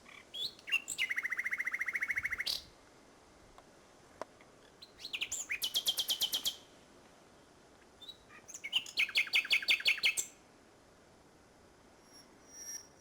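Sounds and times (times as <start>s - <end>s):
nightingale singing: 0.0s - 2.7s, 4.8s - 6.7s, 8.0s - 10.4s.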